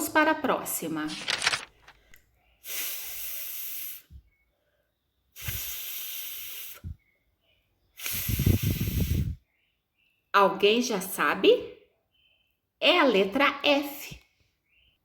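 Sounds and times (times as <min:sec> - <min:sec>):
woman making hissing f sounds: 0:02.6 - 0:04.2, 0:05.3 - 0:07.0, 0:07.9 - 0:09.4.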